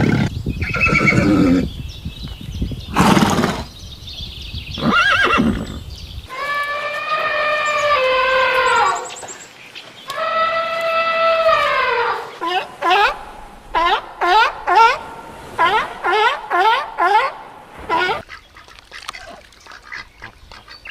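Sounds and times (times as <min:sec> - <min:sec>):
horse whinnying: 0:00.0 - 0:01.7, 0:02.9 - 0:03.7, 0:04.8 - 0:09.1.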